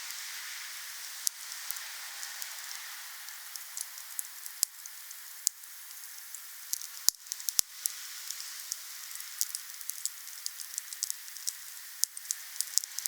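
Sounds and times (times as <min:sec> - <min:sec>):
wood fire hissing and crackling: 0:00.0 - 0:13.0.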